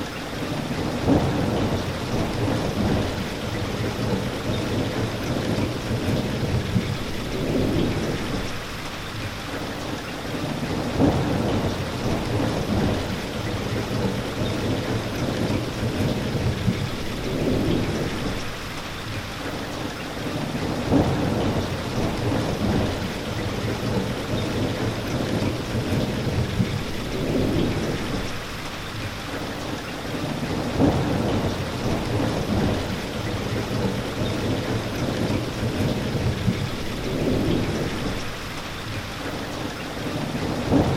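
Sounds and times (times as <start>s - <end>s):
heavy rain falling: 0.0s - 40.9s
thunder rumbling: 0.8s - 8.7s, 10.8s - 18.6s, 20.7s - 28.5s, 30.5s - 38.5s, 40.4s - 40.9s.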